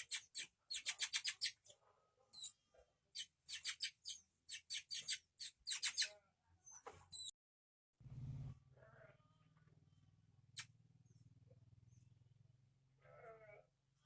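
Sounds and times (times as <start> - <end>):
nestlings squeaking: 0.0 - 1.7, 2.3 - 2.6, 3.2 - 7.3.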